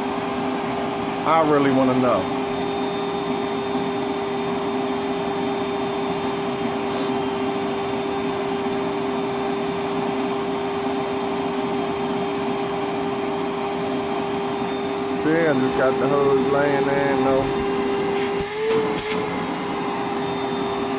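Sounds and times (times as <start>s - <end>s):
wet dry vacuum motor whine: 0.0s - 20.9s.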